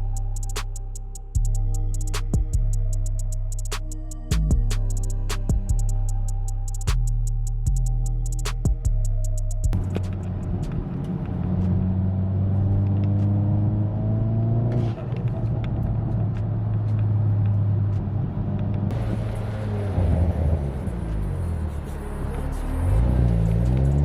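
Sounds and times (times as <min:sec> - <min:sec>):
car engine and exhaust drone: 0:00.0 - 0:24.0.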